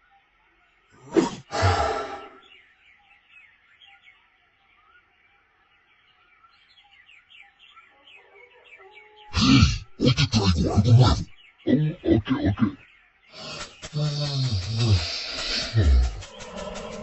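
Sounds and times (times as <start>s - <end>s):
faint rapid bird chirping: 0.0s - 17.0s
loud vocal sound: 9.3s - 12.8s, 13.4s - 17.0s.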